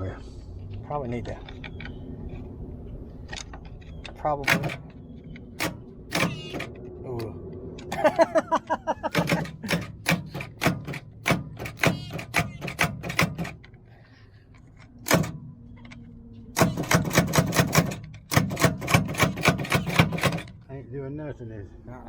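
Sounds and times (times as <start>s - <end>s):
rapid sharp clicks: 4.4s - 6.8s, 9.1s - 13.7s, 15.1s - 15.4s, 16.6s - 20.6s.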